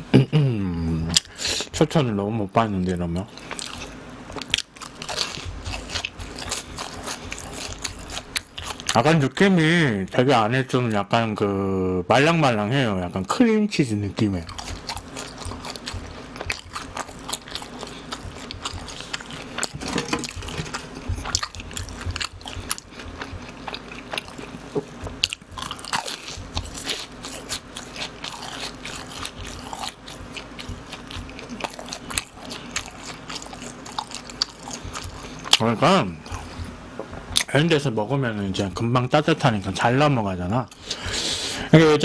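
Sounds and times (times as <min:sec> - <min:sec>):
crunching and chewing snacks: 0:02.8 - 0:09.3, 0:14.4 - 0:36.6.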